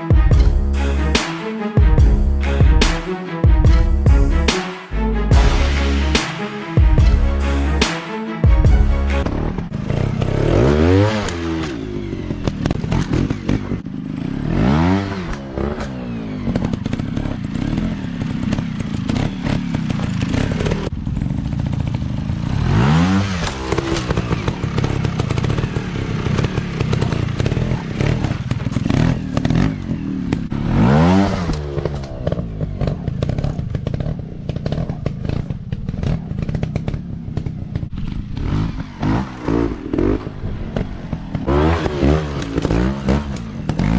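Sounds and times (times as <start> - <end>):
dirt bike engines revving: 9.1 - 43.9.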